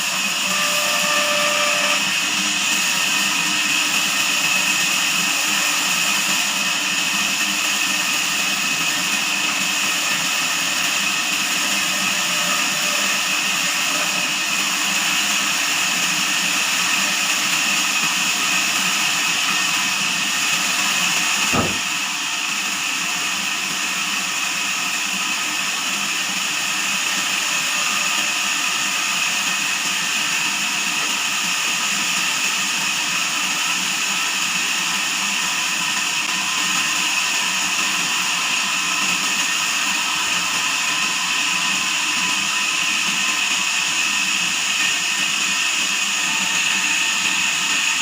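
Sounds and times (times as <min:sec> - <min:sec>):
band sawmill whine: 0:00.0 - 0:23.6
sharp knock: 0:21.5 - 0:21.9.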